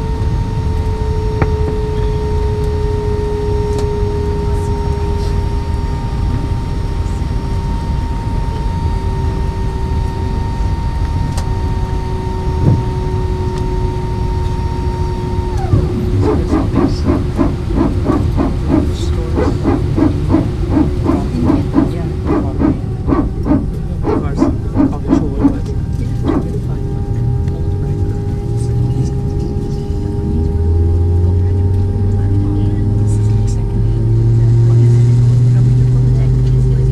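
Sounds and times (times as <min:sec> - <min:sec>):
steady whine: 0:00.0 - 0:36.9
rapid rhythmic barking machine: 0:15.7 - 0:26.5.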